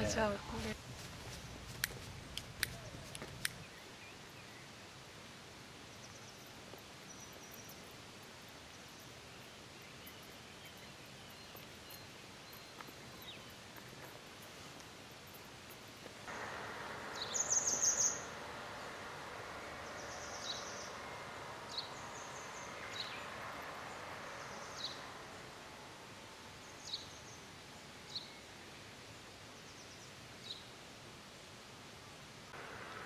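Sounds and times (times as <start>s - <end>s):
small birds chirping: 5.9s - 30.7s
faint steady rushing: 12.6s - 28.1s, 32.5s - 33.0s.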